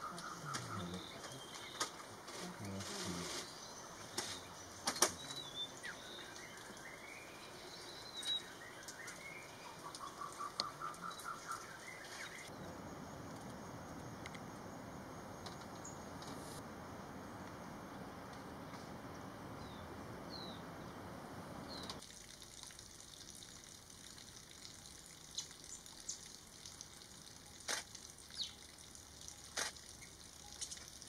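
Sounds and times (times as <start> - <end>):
repeated bird call notes: 0.0 - 2.0.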